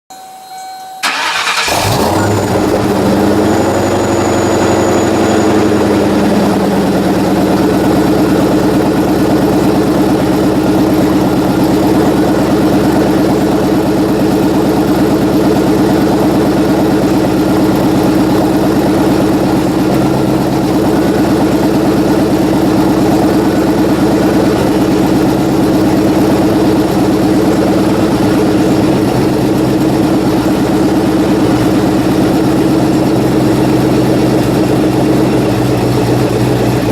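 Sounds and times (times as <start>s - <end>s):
engine cranking: 1.0s - 4.1s
engine idling: 1.0s - 36.9s.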